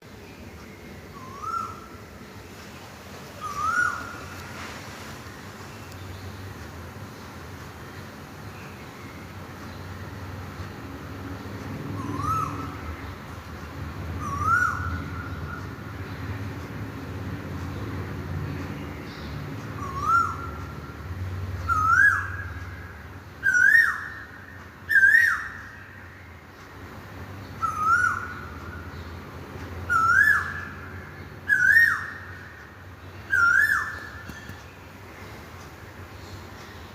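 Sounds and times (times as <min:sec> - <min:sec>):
bird whistled call: 0:01.2 - 0:01.9, 0:03.4 - 0:04.4, 0:12.0 - 0:12.7, 0:14.2 - 0:14.9, 0:19.8 - 0:20.5, 0:21.7 - 0:22.4, 0:23.4 - 0:24.2, 0:24.9 - 0:25.7, 0:27.6 - 0:28.4, 0:29.9 - 0:30.8, 0:31.5 - 0:32.4, 0:33.3 - 0:34.5.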